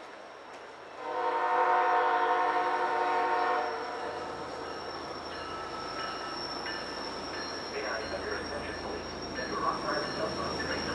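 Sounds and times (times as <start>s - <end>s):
train running noise: 0.0s - 10.9s
locomotive horn blast: 1.0s - 4.4s.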